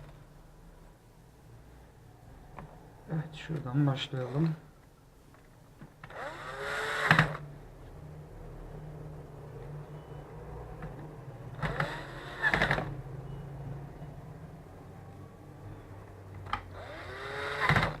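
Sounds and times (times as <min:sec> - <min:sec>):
electric screwdriver whining: 0:06.0 - 0:07.4, 0:11.6 - 0:12.9, 0:16.8 - 0:18.0.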